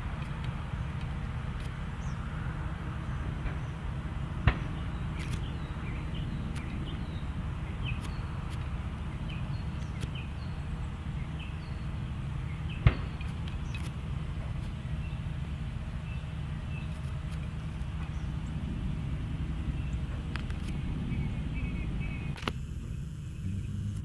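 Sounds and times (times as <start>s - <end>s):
low rumble: 0.0s - 24.0s
sharp clicks: 0.2s - 2.2s, 4.4s - 11.8s, 12.6s - 14.8s, 16.8s - 18.4s, 19.8s - 21.4s, 22.1s - 24.0s
faint bird chirps: 19.6s - 23.8s.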